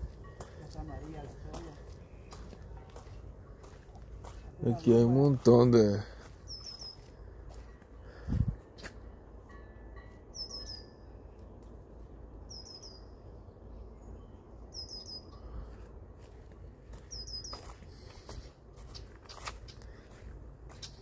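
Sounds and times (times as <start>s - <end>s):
bird chirping: 6.3s - 7.2s, 10.3s - 11.3s, 12.5s - 15.6s, 17.0s - 17.8s.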